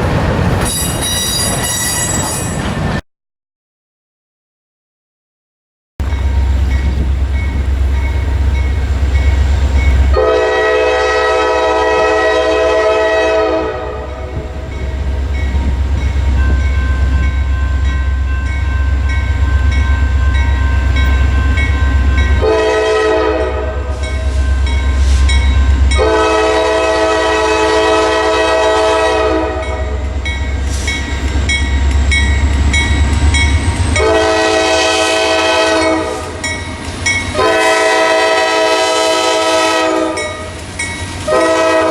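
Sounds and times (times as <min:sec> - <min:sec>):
deep rumble of train: 0:00.0 - 0:03.0, 0:06.0 - 0:41.9
train air horn blasts: 0:10.1 - 0:14.8, 0:22.4 - 0:31.0, 0:34.0 - 0:36.4, 0:37.3 - 0:40.5, 0:41.2 - 0:41.9.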